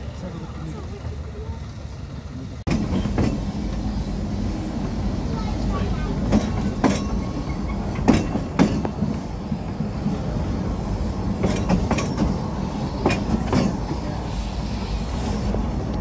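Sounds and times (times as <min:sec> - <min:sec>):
train wheels rumbling: 0:00.0 - 0:16.0
wheels clicking over rail joints: 0:05.6 - 0:10.2, 0:11.3 - 0:14.1.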